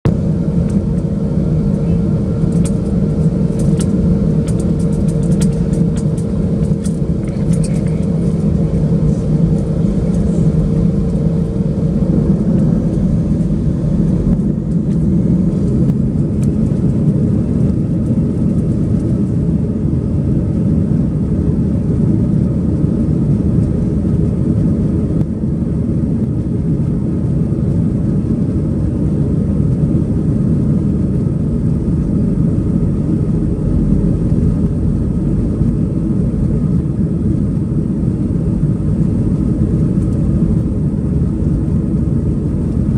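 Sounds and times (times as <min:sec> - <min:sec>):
jet engine rumble in cabin: 0:00.0 - 0:42.9
steady tone: 0:00.1 - 0:16.7
scattered clicks: 0:02.5 - 0:08.6.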